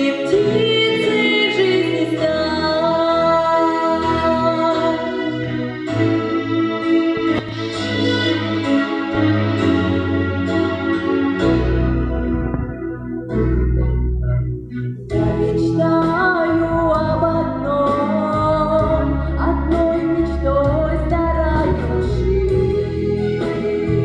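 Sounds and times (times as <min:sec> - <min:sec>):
woman singing: 0:00.0 - 0:05.4, 0:15.1 - 0:24.0
backing track of bass and keyboards: 0:00.0 - 0:24.0.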